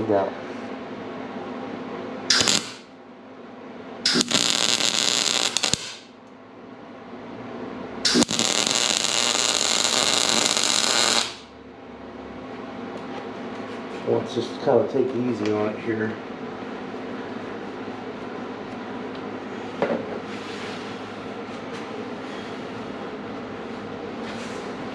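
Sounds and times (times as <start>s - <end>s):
arc welder crackling hiss: 2.3s - 2.9s, 4.0s - 6.2s, 8.0s - 11.6s.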